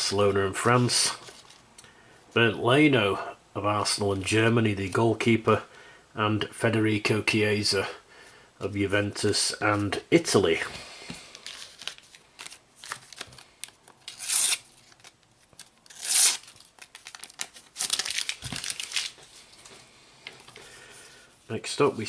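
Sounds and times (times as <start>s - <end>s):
paper packet tearing and crinkling: 11.3s - 19.4s.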